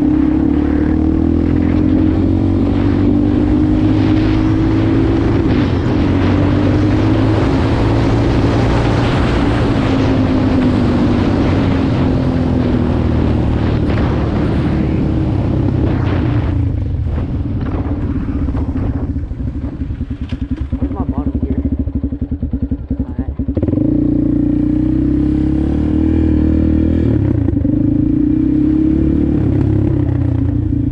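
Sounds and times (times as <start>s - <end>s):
wind buffeting microphone: 0.0s - 25.4s
dirt bike engine running: 0.0s - 30.9s.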